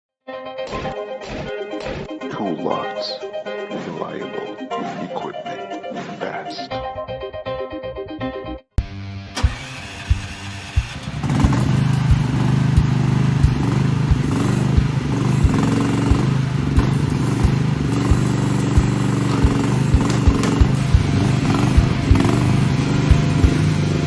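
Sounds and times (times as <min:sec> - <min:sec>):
excavator engine running: 0:09.4 - 0:24.0
regular low thud: 0:12.8 - 0:15.6, 0:18.1 - 0:22.2.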